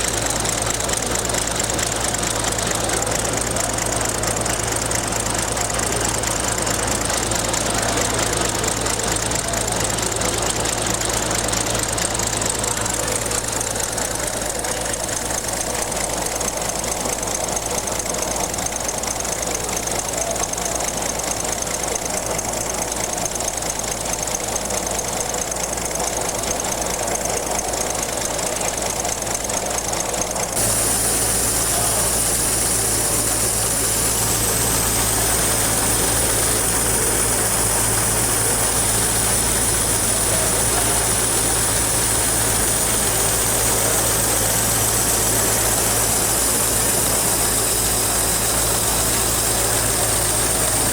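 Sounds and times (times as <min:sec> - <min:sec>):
another engine running: 0:00.0 - 0:50.9
model engine knocking: 0:00.0 - 0:50.9.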